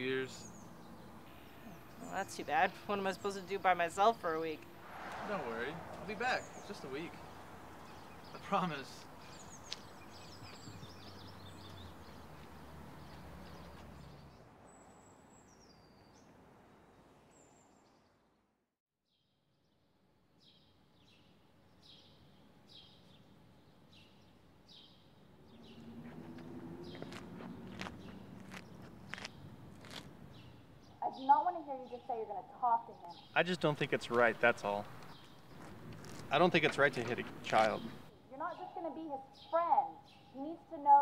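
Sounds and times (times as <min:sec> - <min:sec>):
small birds chirping: 0:00.0 - 0:16.3, 0:20.4 - 0:41.0.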